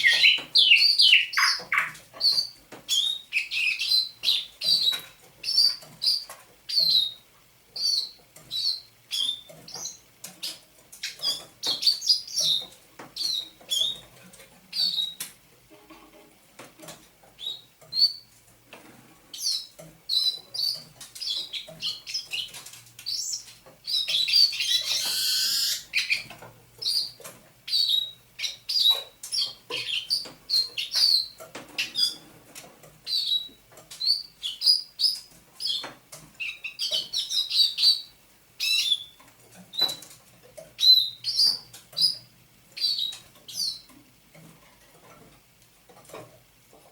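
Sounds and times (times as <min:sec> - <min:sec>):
nightingale singing: 0:00.0 - 0:07.2, 0:19.4 - 0:32.2.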